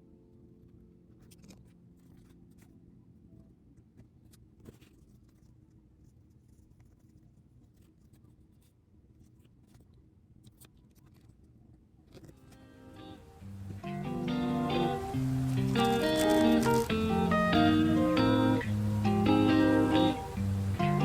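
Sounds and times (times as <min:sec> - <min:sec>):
low steady hum: 0:12.5 - 0:21.0
light stationery clicks: 0:15.5 - 0:17.0.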